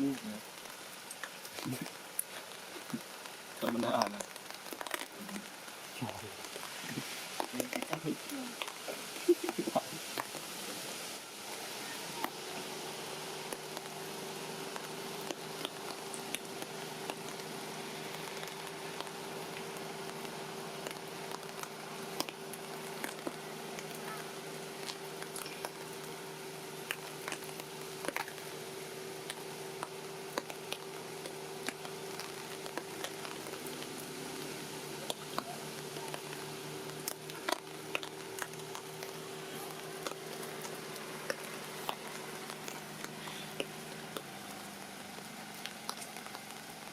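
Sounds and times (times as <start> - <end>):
raindrops tapping and dripping: 0.0 - 46.9
steady rain: 0.0 - 46.9.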